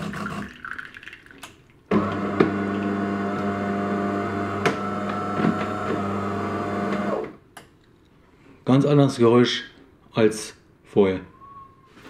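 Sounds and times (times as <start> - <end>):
coffee machine motor running: 1.9 - 7.3.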